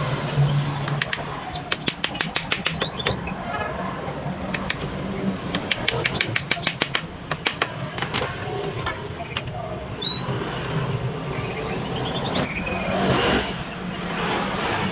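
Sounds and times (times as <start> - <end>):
small hammer tapping nails: 0.9 - 3.2, 4.5 - 4.9, 5.5 - 8.3.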